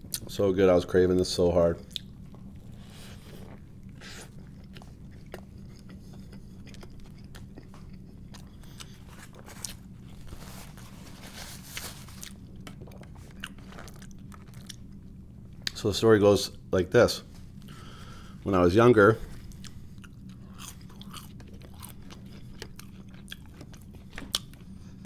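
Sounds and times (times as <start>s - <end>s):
steady low hum: 0.0s - 25.0s
crunchy biting and chewing: 1.9s - 15.0s, 19.4s - 25.0s.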